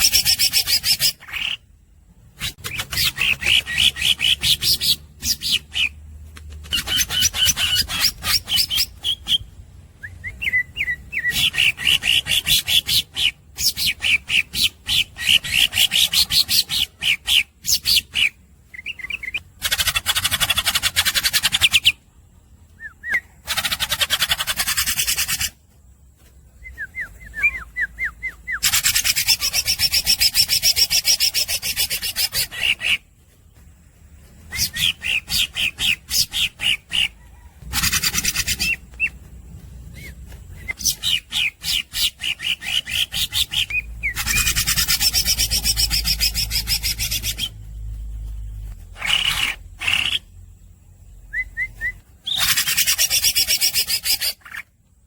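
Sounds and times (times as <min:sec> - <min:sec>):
bird singing sharp notes and chatter: 0:26.6 - 0:54.7.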